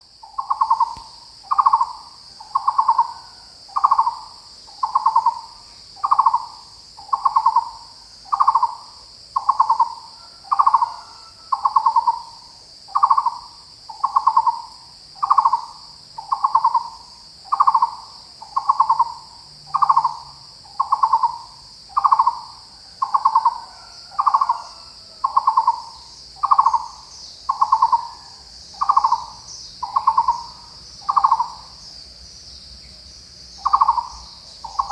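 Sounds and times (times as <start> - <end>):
bird hollow low calls: 23.0 - 31.9, 33.5 - 34.9
insects shrilling: 23.0 - 34.9.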